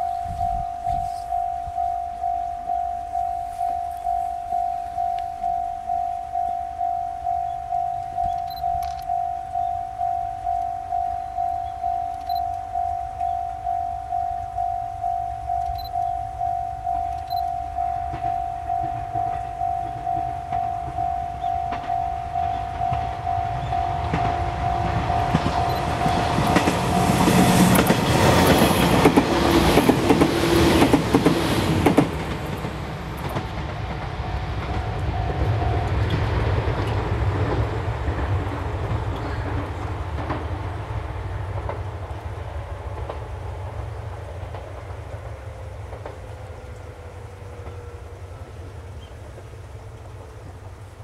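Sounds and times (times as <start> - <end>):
level-crossing bell ringing: 0.0 - 29.0, 34.7 - 36.2
train motor hum: 0.0 - 51.0
train wheels clacking over rail joints: 18.0 - 46.5.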